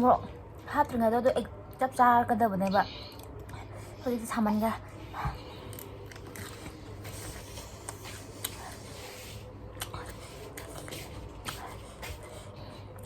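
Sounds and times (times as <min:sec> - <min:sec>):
wet chewing mouth sounds: 0:05.1 - 0:13.0.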